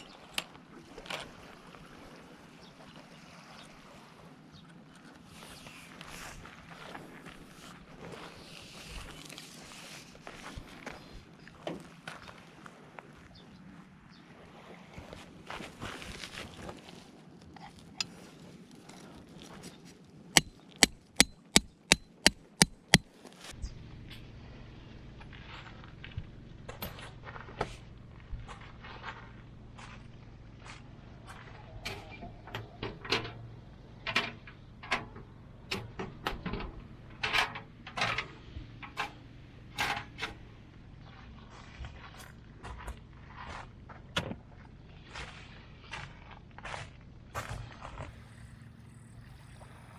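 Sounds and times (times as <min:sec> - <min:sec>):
footsteps: 0:20.4 - 0:23.1
objects being handled: 0:20.4 - 0:23.1
sharp knocks: 0:20.4 - 0:23.1.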